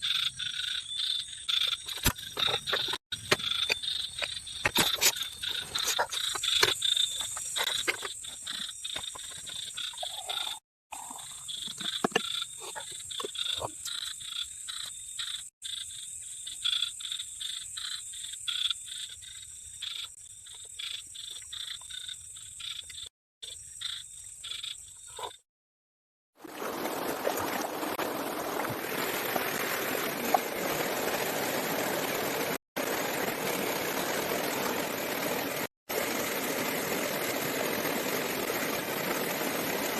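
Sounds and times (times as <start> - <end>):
frogs and insects trilling: 0.0 - 25.4.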